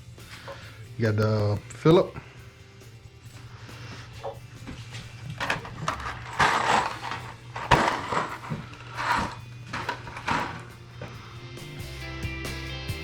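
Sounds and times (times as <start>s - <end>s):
hand tools scraping and clinking: 3.7s - 11.2s.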